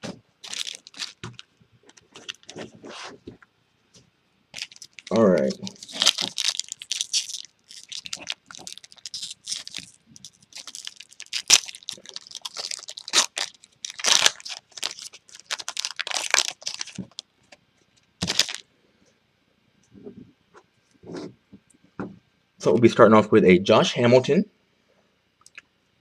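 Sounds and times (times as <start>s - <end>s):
card pack wrappers crinkling and tearing: 0.4s - 2.8s, 4.6s - 17.3s, 18.2s - 18.6s.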